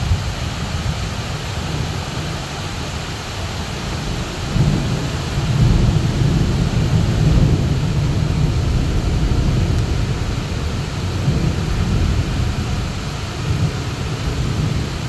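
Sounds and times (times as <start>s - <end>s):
heavy rain pouring: 0.0s - 15.0s
low rumble of thunder: 3.8s - 15.0s.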